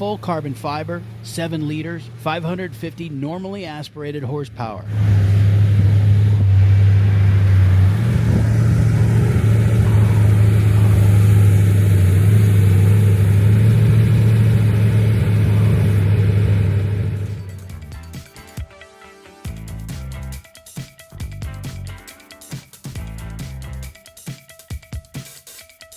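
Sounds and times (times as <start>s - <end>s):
car engine deep rumble: 0.0s - 18.1s.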